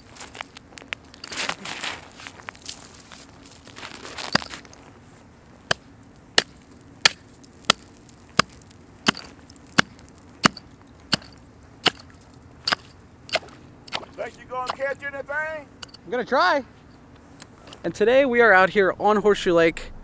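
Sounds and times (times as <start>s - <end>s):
scuffling crackle: 0.0s - 15.6s
hatchet chopping ice: 6.4s - 14.8s.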